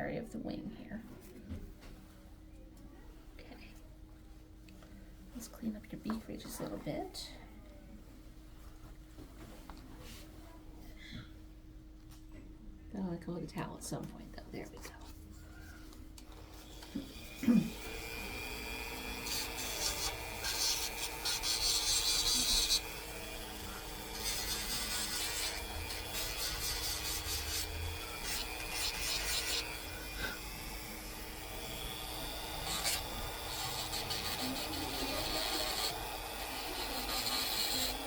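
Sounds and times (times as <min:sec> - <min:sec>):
beak being filed rasping: 0:17.1 - 0:38.0.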